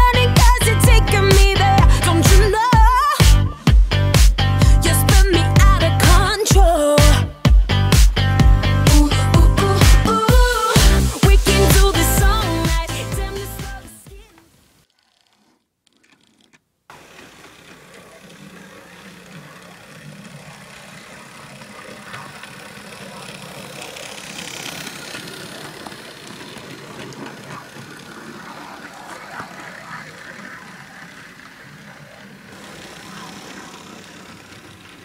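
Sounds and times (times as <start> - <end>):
model train motor hum: 14.9 - 35.0
wheel rattle on track: 16.9 - 35.0.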